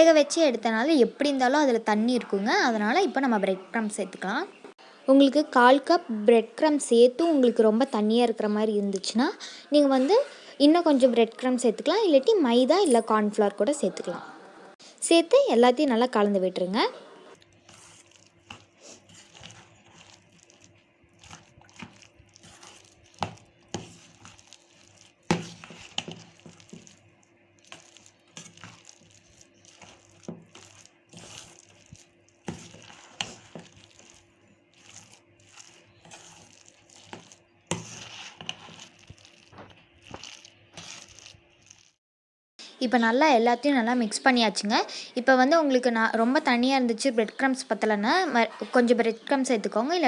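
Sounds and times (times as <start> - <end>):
mixture squishing in a bowl: 17.4 - 42.0.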